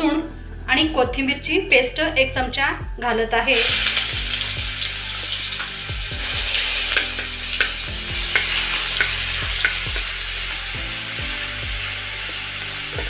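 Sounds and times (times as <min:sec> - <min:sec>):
paste sizzling in hot oil: 0:03.5 - 0:13.0
steel spoon clicking against pan: 0:06.9 - 0:10.2.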